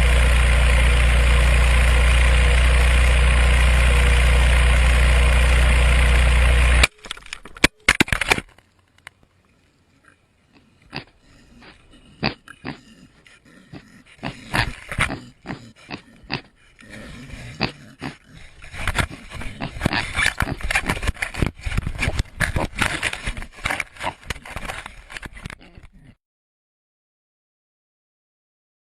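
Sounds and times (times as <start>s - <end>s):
pigs grunting: 9.9s - 26.2s
camera knocking on ground: 18.7s - 25.9s.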